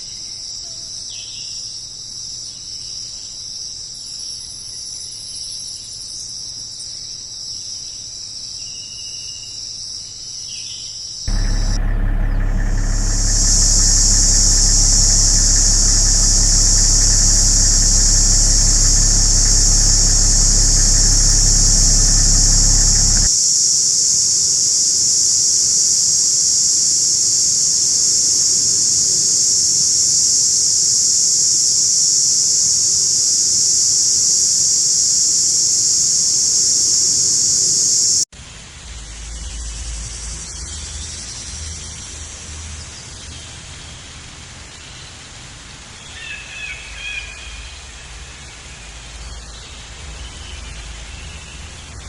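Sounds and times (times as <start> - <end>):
low engine-like hum: 11.3 - 23.3
shrill insect drone: 11.3 - 23.3.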